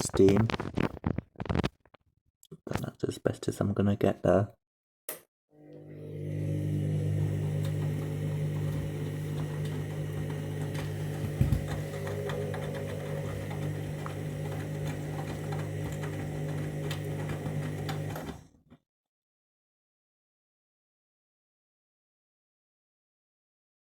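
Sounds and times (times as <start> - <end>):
washing machine motor hum: 5.6 - 18.6.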